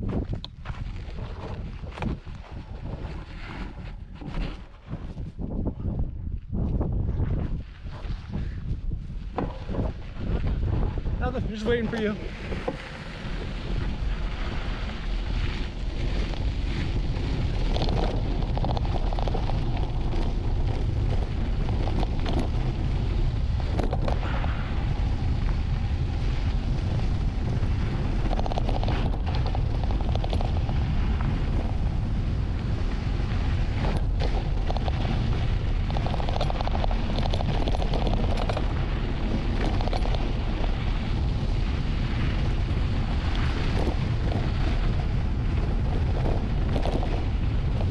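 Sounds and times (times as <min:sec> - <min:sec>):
wind buffeting microphone: 0:00.0 - 0:47.9
bike knocks and rattles: 0:09.2 - 0:11.0, 0:12.3 - 0:47.9.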